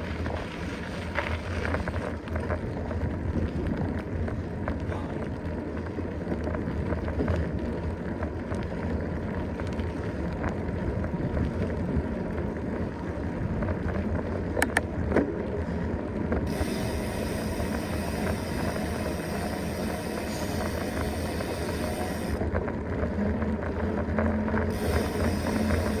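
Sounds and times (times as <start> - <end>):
bike tyres rumbling on trail: 0.0 - 26.0
high hiss: 16.5 - 22.4, 24.8 - 26.0.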